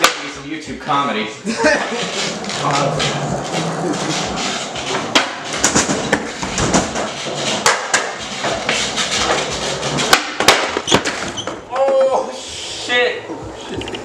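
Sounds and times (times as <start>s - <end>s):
skateboard deck clacking: 0.0s - 0.3s, 2.0s - 12.2s
skateboard wheels rolling: 1.6s - 14.0s.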